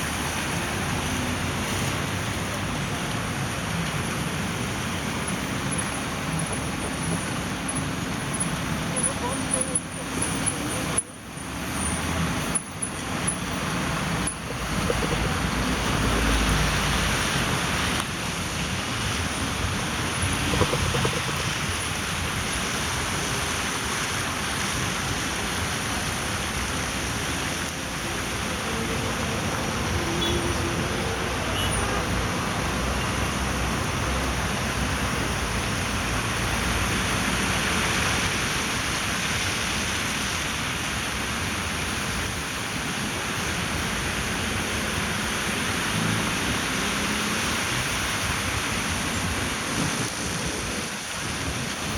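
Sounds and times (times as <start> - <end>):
vehicle running: 0.0 - 22.7
tyre and road hiss: 0.0 - 51.9.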